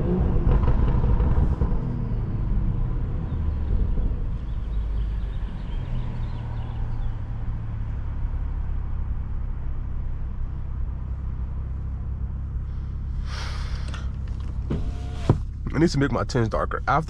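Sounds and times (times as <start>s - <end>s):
car engine running in cabin: 0.0s - 17.0s
rush of noise: 12.7s - 16.0s.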